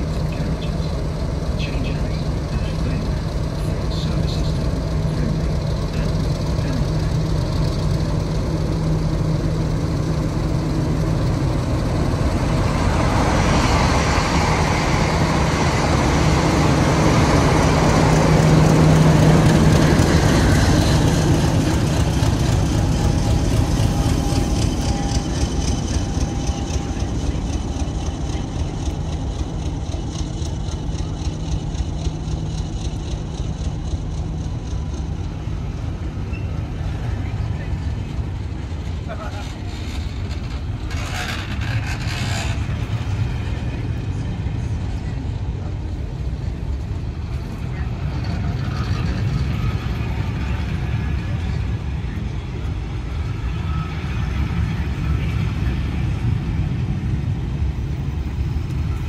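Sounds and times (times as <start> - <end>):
diesel locomotive engine hum: 0.0 - 59.0
train wheels clicking: 2.2 - 37.1, 38.6 - 44.1.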